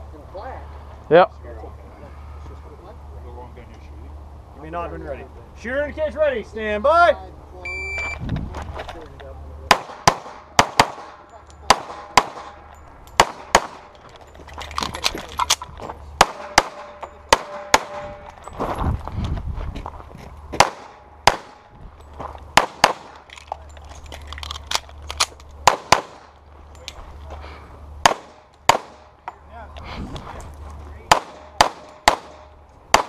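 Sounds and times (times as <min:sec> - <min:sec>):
pistol shots: 0:09.7 - 0:12.6, 0:13.2 - 0:14.0, 0:16.2 - 0:18.2, 0:20.6 - 0:21.7, 0:22.6 - 0:23.3, 0:25.6 - 0:26.3, 0:28.0 - 0:29.1, 0:31.1 - 0:33.0.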